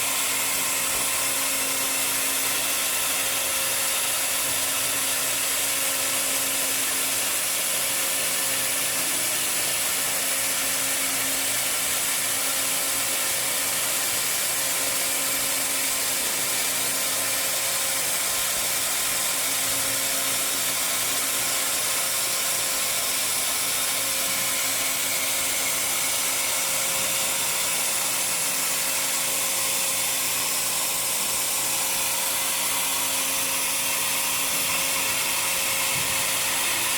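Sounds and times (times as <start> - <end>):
welding machinery whirring hiss: 21.4 - 36.9.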